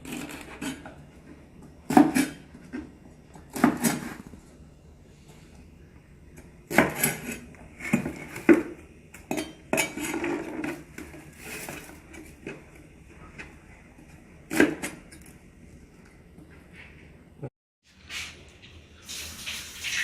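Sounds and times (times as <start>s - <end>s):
utensils and dishes clattering: 0.0s - 1.0s, 6.8s - 12.5s.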